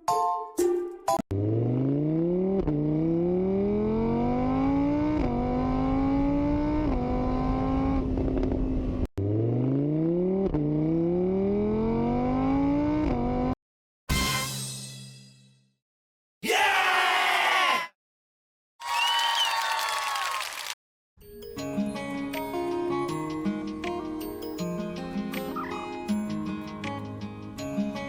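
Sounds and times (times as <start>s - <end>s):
car engine revving through gears: 1.3s - 13.6s.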